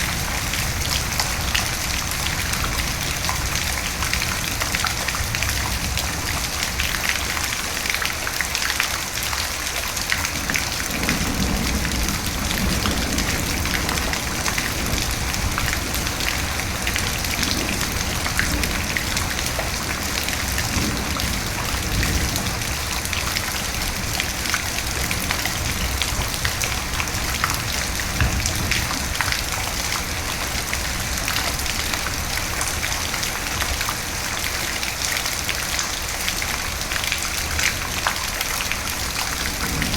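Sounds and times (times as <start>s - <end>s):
heavy rain pattering: 0.0s - 39.9s
thunder rumbling: 10.2s - 34.2s, 38.8s - 39.9s.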